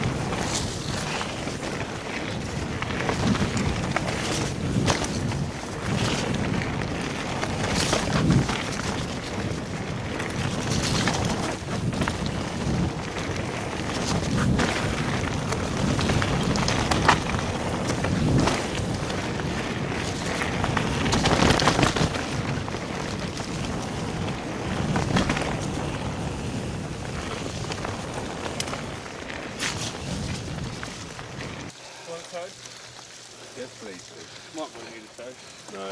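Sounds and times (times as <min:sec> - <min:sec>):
bike knocks and rattles: 0:00.0 - 0:31.7
wind buffeting microphone: 0:00.0 - 0:31.7
bike tyre noise on mud: 0:00.0 - 0:35.9.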